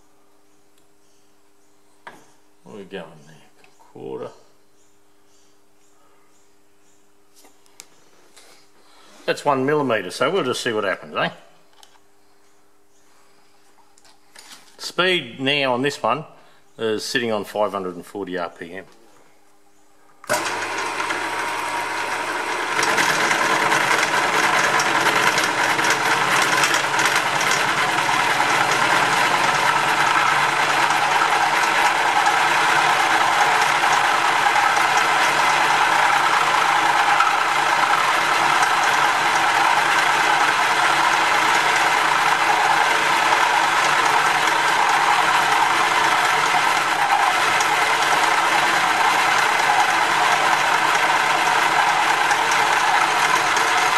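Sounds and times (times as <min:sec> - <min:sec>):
gear whine: 0:20.2 - 0:53.9
milling machine cutting metal: 0:20.3 - 0:53.9.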